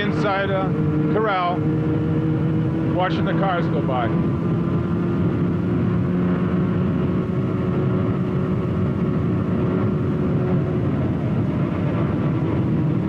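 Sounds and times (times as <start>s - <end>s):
motorcycle engine running: 0.0s - 13.0s
wind and road noise: 0.0s - 13.0s.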